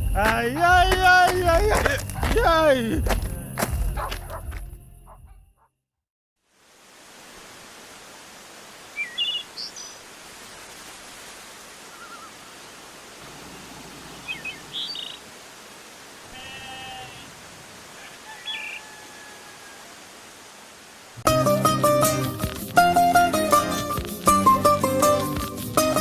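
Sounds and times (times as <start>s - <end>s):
steady outdoor hiss: 0.0s - 4.1s, 6.4s - 26.0s
birds chirping: 0.0s - 5.4s, 13.3s - 15.3s.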